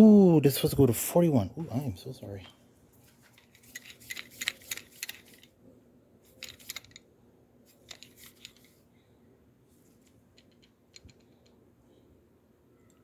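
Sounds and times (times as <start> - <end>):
hand tools clicking and rattling: 3.3 - 5.5, 6.4 - 7.0, 7.7 - 8.8.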